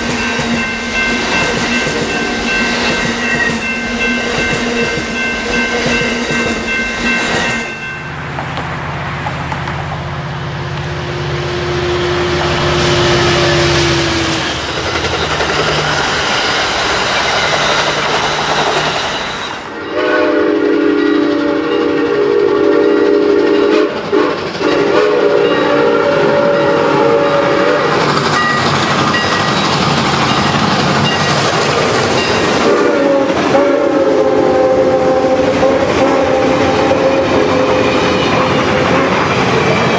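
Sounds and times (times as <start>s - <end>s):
train wheels clattering on rails: 0.0s - 10.0s, 12.4s - 39.9s
train horn blasts: 11.0s - 14.6s, 19.7s - 28.0s, 32.4s - 39.9s.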